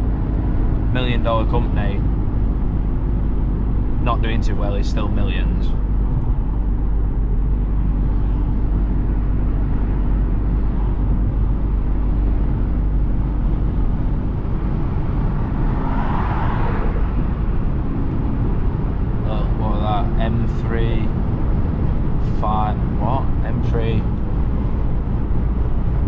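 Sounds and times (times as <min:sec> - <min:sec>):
car engine running: 0:00.0 - 0:26.0
road and tyre noise: 0:00.0 - 0:26.0
rushing sound: 0:14.3 - 0:19.4.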